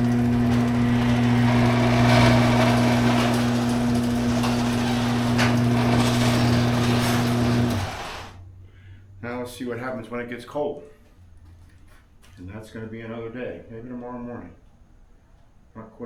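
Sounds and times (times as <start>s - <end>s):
garage door opener motor humming: 0.0s - 8.4s
garage door rattling: 0.0s - 8.4s.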